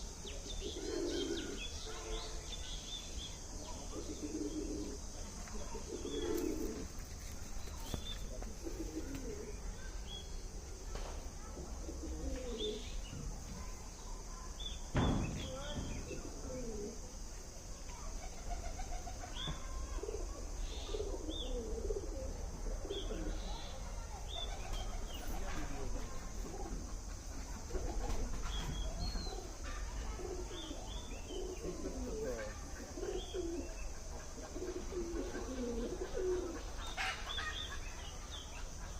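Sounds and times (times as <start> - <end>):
doves cooing: 0.0 - 2.2, 3.4 - 10.6, 11.5 - 13.5, 15.4 - 17.3, 18.1 - 38.9
bird chirp: 0.0 - 5.0, 28.4 - 38.9.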